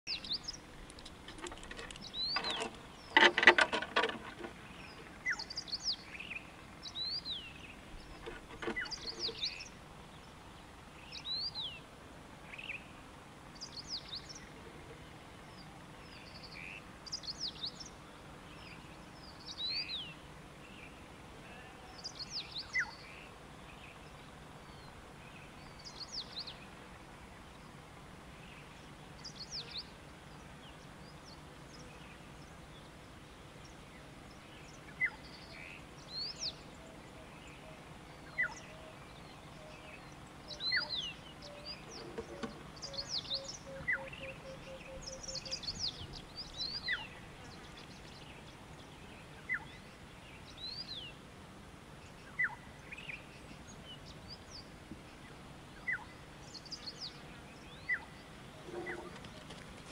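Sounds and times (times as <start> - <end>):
loud rapid bird rattle: 0.9 - 4.6
birds whistling: 40.5 - 47.1.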